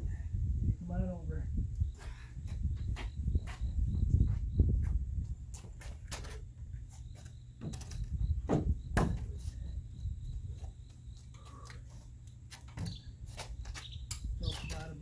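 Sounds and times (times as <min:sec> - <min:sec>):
wooden board knocks and bumps: 0:07.6 - 0:09.4.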